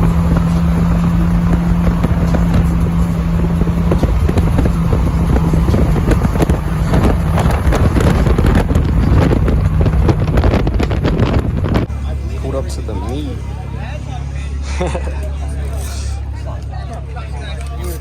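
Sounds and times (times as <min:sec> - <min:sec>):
wind buffeting microphone: 0:00.0 - 0:12.7
car engine drone: 0:00.0 - 0:18.0
road noise: 0:00.0 - 0:18.0.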